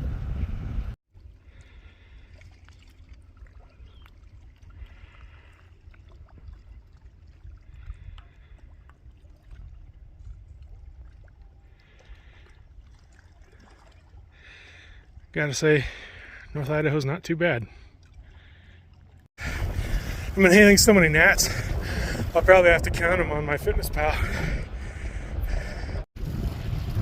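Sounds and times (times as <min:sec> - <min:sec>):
bicycle rolling on trail: 0:19.1 - 0:23.0.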